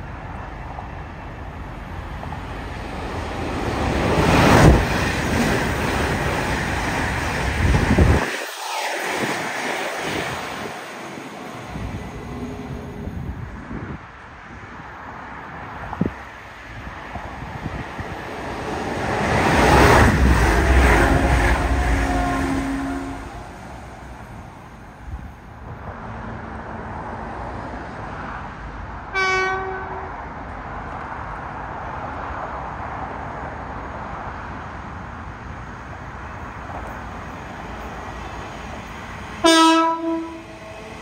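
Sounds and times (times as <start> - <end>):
train passing at speed: 0.0 - 41.0
train horn blast: 20.5 - 23.6, 29.1 - 30.2, 39.4 - 40.7.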